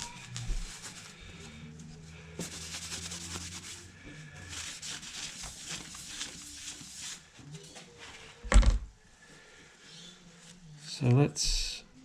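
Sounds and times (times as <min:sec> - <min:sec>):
brush scrubbing scratchy strokes: 0:02.4 - 0:07.5.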